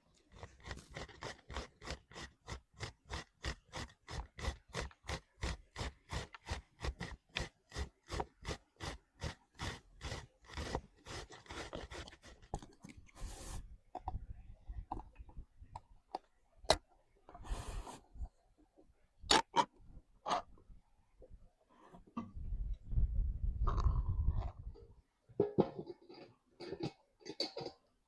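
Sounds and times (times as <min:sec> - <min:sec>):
rhythmic scraping of food: 0:00.2 - 0:12.6.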